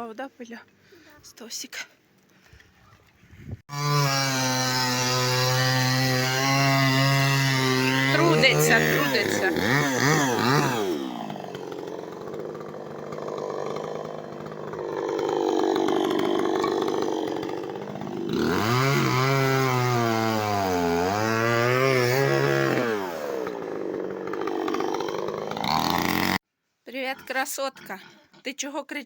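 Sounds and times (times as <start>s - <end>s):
chainsaw cutting wood: 3.7s - 26.4s.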